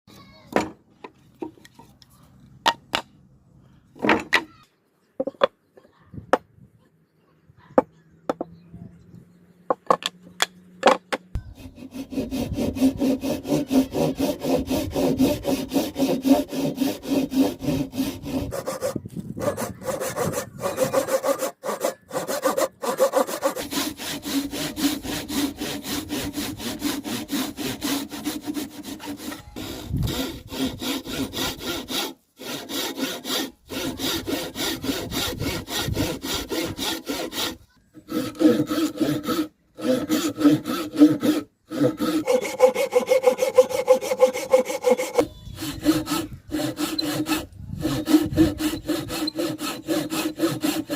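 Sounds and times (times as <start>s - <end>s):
saw cutting through wood: 11.4s - 50.9s.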